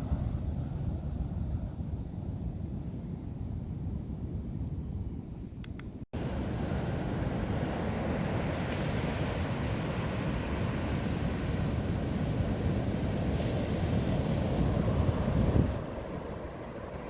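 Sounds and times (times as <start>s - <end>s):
wind buffeting microphone: 0.0s - 5.6s, 6.2s - 17.0s
surf breaking on beach: 6.2s - 17.0s.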